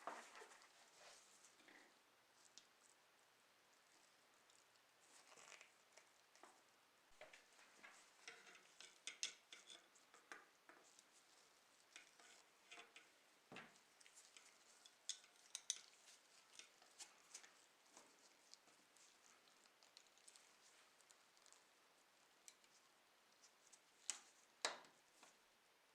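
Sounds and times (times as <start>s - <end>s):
small parts and tools clicking: 7.2s - 10.9s, 11.9s - 18.1s.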